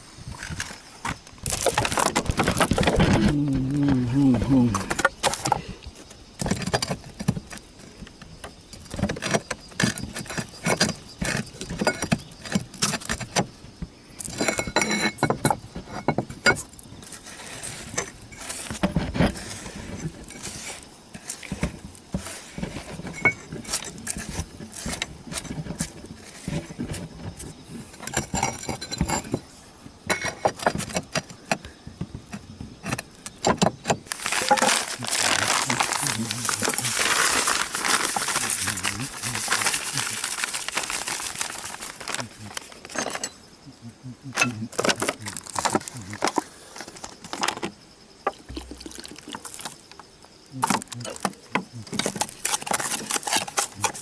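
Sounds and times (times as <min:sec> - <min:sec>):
clay roof tiles clinking: 0:00.3 - 0:54.0.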